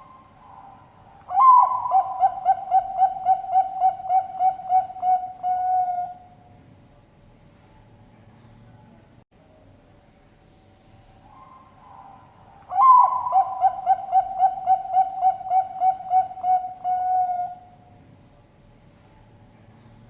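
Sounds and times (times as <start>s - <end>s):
dove cooing: 0.0s - 6.4s, 11.3s - 17.8s.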